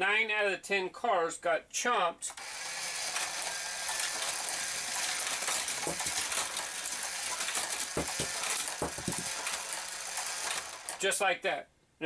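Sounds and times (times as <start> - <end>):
toy cars knocking track: 2.3 - 11.2
toy cars rattling through plastic track: 2.3 - 11.2.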